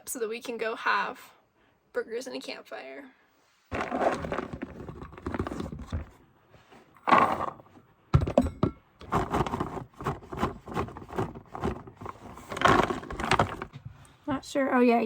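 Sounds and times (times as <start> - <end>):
knocks and thuds of handling: 3.7 - 14.0.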